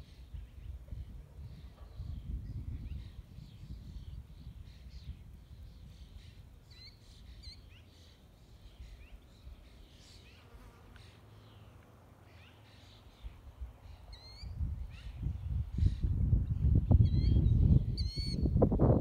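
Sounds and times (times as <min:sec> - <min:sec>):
small birds chirping: 0:00.0 - 0:18.6.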